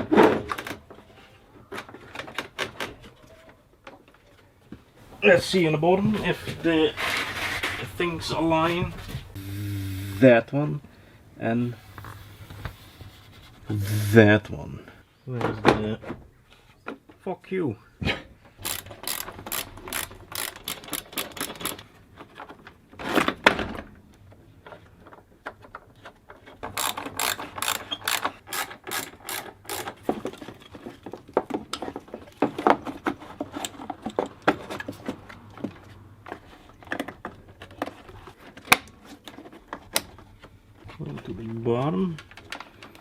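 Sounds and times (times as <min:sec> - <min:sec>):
socket ratchet clicking: 0:18.6 - 0:21.8, 0:26.7 - 0:30.0.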